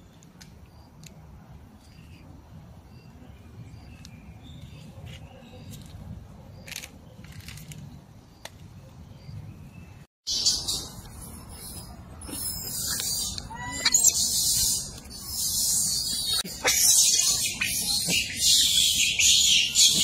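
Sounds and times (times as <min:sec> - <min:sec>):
bird chirps: 0:09.1 - 0:20.0.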